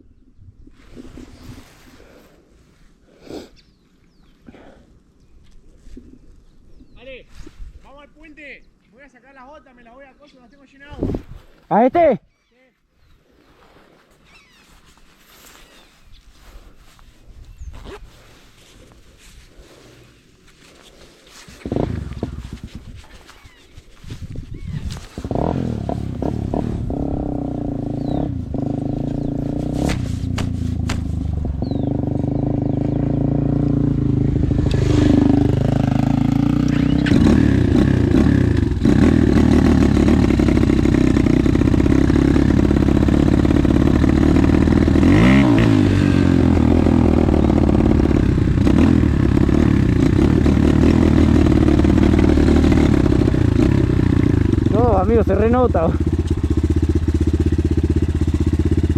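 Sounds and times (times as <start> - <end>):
motorcycle engine running: 21.6 - 23.0, 24.2 - 58.9.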